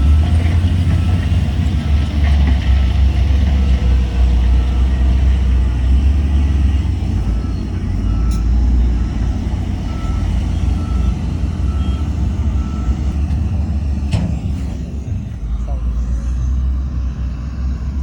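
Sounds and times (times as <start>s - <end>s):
diesel machine rumbling: 0.0s - 18.0s
reversing alarm beeps: 7.2s - 13.2s.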